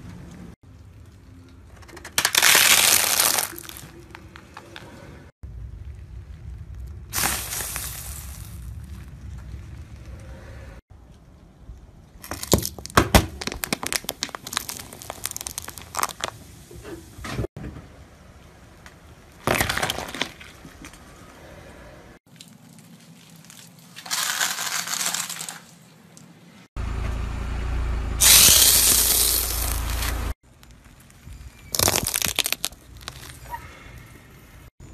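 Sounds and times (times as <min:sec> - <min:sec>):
tyre crushing can: 0:01.8 - 0:04.4, 0:12.2 - 0:16.4, 0:31.7 - 0:33.4
squashing crunches: 0:02.1 - 0:04.1, 0:07.1 - 0:09.4, 0:12.2 - 0:16.4, 0:28.2 - 0:33.5
tyre crushing foam: 0:02.2 - 0:03.9, 0:07.1 - 0:09.1, 0:12.2 - 0:16.4, 0:31.6 - 0:33.4.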